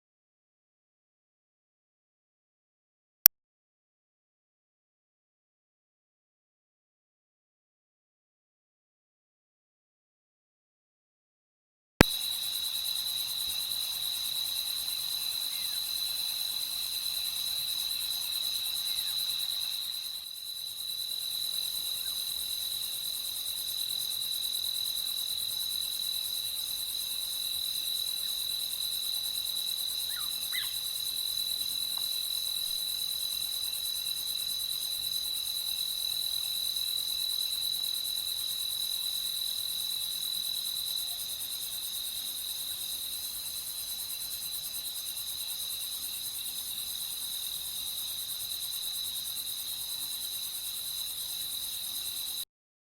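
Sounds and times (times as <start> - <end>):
crickets trilling: 12.0 - 52.4.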